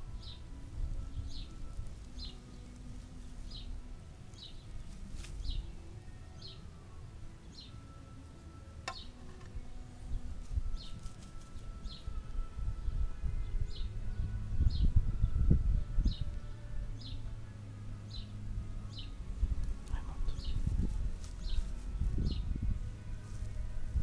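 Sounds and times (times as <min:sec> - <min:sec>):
low rumble: 0:11.9 - 0:24.0.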